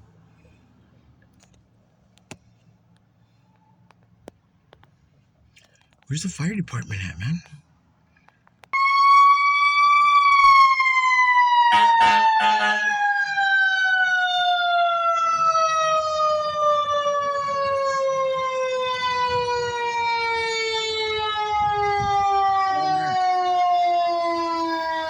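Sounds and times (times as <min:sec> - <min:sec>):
mechanical siren wailing: 0:08.8 - 0:25.0.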